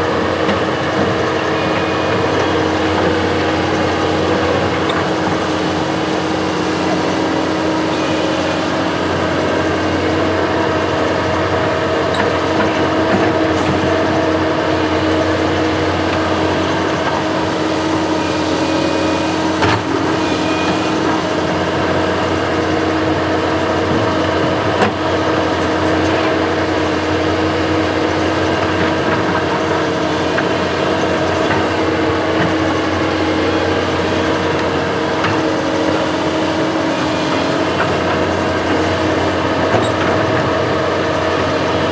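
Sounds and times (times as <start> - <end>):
construction machine engine running: 0.0 - 41.9.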